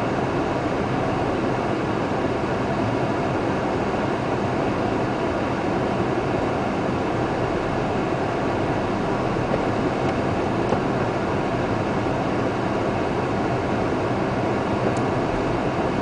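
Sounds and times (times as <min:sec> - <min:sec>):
car driving in rain: 0:07.1 - 0:16.0.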